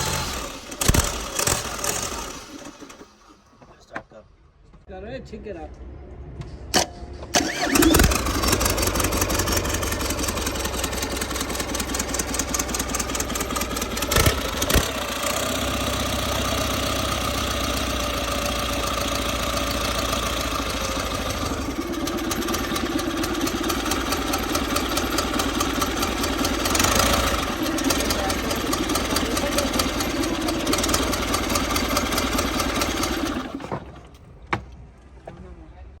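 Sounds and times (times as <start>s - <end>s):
diesel engine starting and running: 0.0s - 3.7s, 6.7s - 34.4s.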